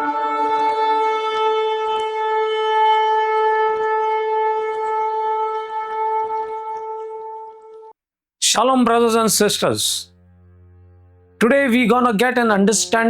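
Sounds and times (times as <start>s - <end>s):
shofar long steady blast: 0.0s - 7.7s.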